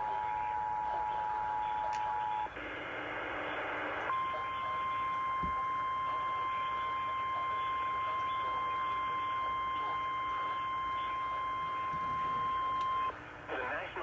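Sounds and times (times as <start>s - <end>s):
steady alarm tone: 4.1s - 13.2s.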